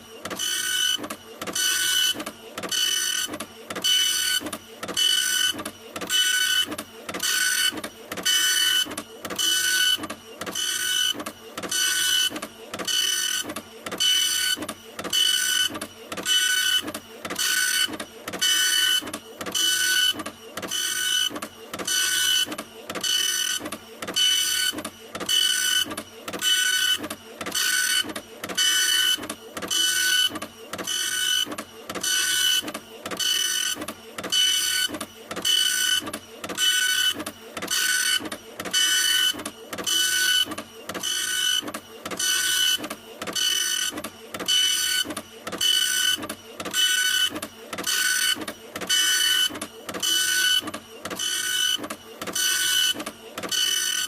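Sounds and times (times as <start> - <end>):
printer whirring: 0.0 - 54.0.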